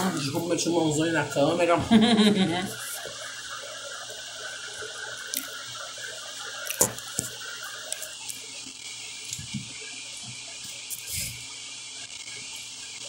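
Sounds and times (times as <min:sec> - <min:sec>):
steady hiss: 0:00.0 - 0:13.0
wet crackly chewing: 0:05.2 - 0:08.4.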